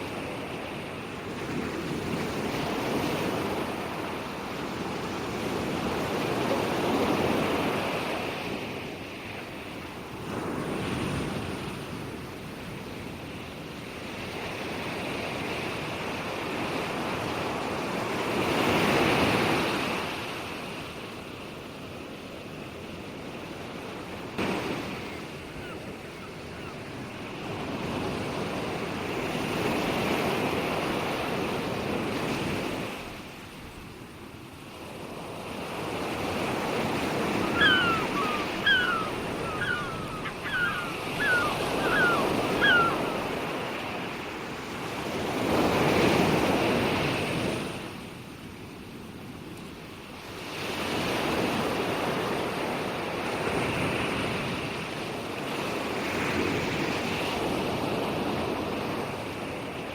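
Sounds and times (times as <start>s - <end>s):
ocean waves breaking: 0.0s - 48.2s
bird chirping: 37.4s - 43.3s.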